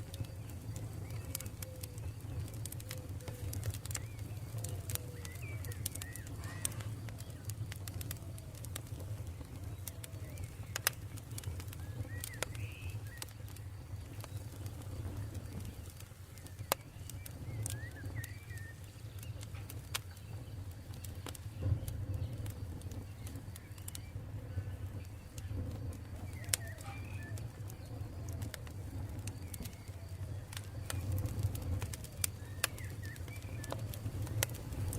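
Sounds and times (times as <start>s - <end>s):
birds chirping: 0.0s - 34.9s
campfire crackling: 0.0s - 34.9s
birds cooing: 1.2s - 7.4s.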